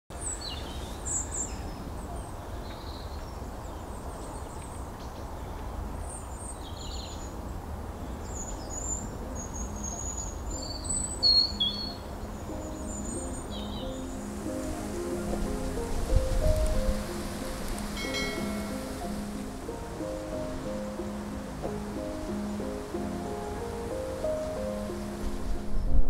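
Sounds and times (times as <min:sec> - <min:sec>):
small birds chirping: 0:00.1 - 0:25.2
music: 0:08.7 - 0:26.0.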